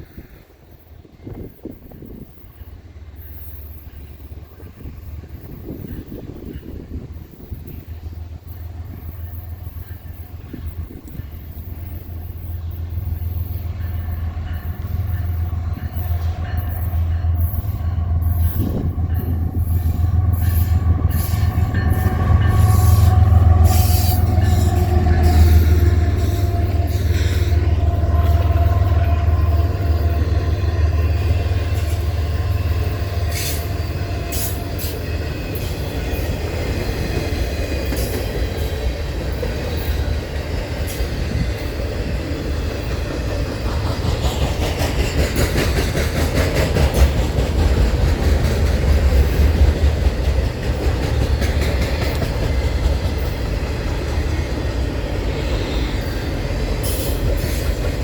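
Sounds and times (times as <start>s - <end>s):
freight train rumbling past: 0.0s - 58.0s
wheels clicking over rail joints: 1.5s - 58.0s.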